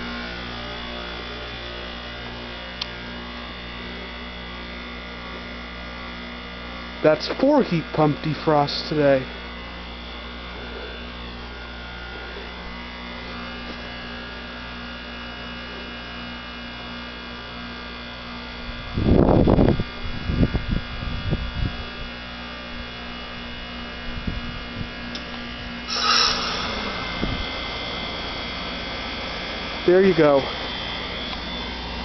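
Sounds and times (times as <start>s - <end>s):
compressor humming: 0.0s - 16.4s, 22.3s - 32.0s
hissing rush: 25.9s - 28.5s
loud rush of refrigerant: 25.9s - 32.0s.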